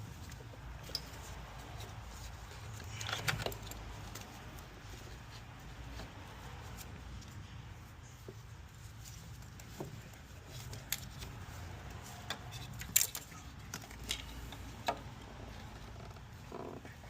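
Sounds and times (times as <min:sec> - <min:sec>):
metal tools clinking: 0:12.1 - 0:14.8.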